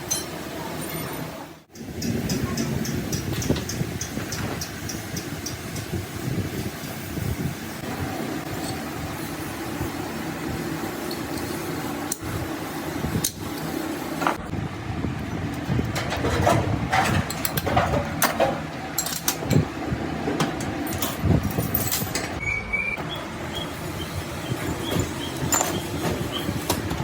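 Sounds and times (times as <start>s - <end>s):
machine humming: 22.4s - 27.0s
metal parts knocking: 24.9s - 27.0s.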